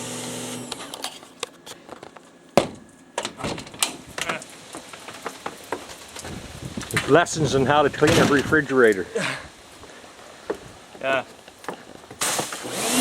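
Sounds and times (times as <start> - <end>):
knocks and clatters: 1.9 - 8.6
sharp bang: 2.6 - 3.6.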